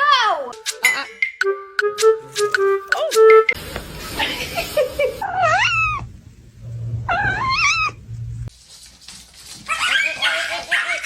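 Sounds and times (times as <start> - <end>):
cat meowing: 5.2 - 6.1, 7.1 - 8.0.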